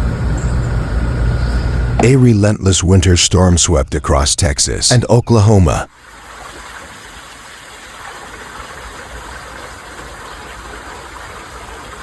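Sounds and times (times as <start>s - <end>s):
vehicle engine rumbling: 0.0s - 3.3s.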